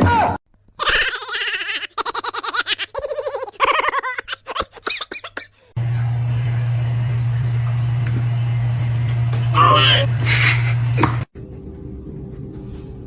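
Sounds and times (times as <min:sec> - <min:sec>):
person giggling: 0:00.9 - 0:05.7, 0:10.2 - 0:10.8
steady low hum: 0:05.8 - 0:13.0.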